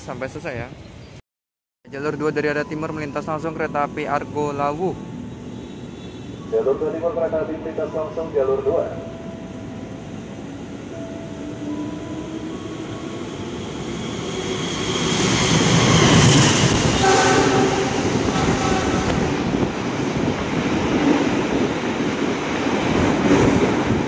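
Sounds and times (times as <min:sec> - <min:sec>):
train rumble and wheel clatter: 0:02.0 - 0:24.0
train horn: 0:17.0 - 0:19.3.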